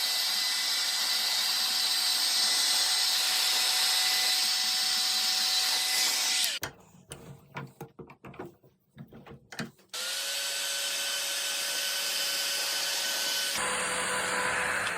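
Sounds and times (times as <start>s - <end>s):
power tool motor running: 0.0s - 6.6s, 10.0s - 14.9s.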